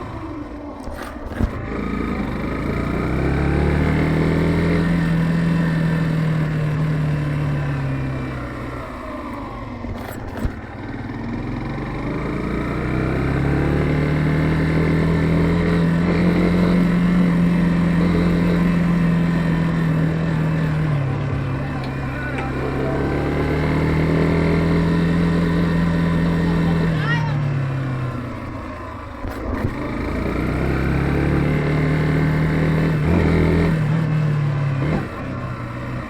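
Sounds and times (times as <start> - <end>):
motorcycle engine: 0.0 - 36.0.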